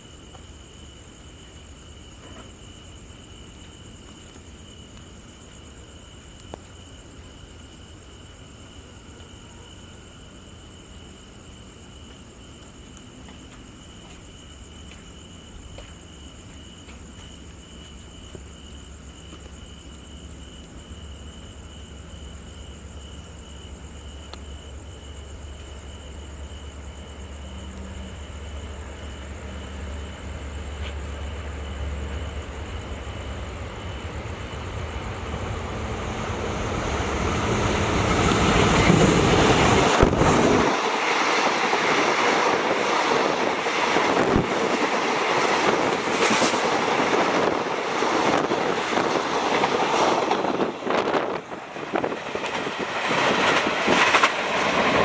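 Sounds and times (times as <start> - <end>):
diesel locomotive engine rumble: 20.2 - 55.0
train wheels clacking on rail joints: 38.0 - 55.0.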